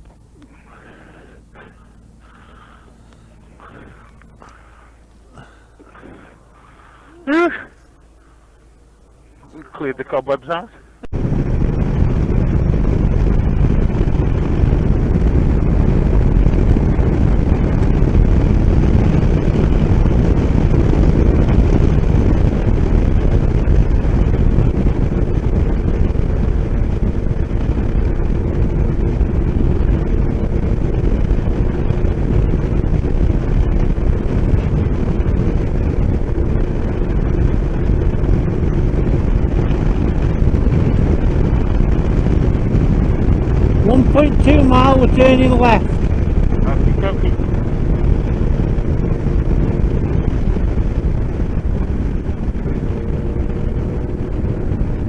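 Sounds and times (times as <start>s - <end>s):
wind rush on microphone: 0.0s - 55.0s
motorcycle engine running: 11.0s - 55.0s.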